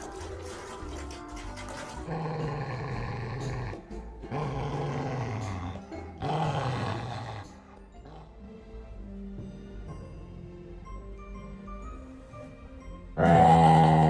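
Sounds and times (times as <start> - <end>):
dog growling: 1.9 - 8.4, 13.2 - 14.0.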